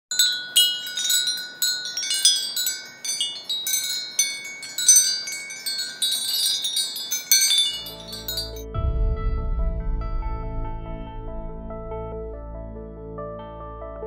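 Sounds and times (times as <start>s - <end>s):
wind chimes ringing: 0.1s - 8.7s.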